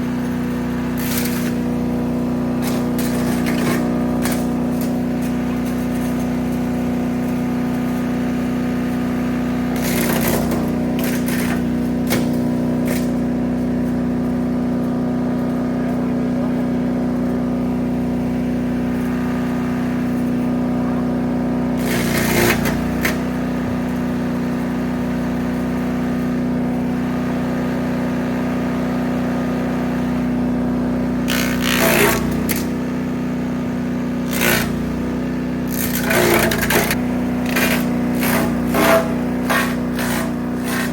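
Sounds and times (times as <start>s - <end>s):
brush crunching in chipper: 0.0s - 25.3s, 31.2s - 40.9s
wood chipper engine running: 0.0s - 40.9s.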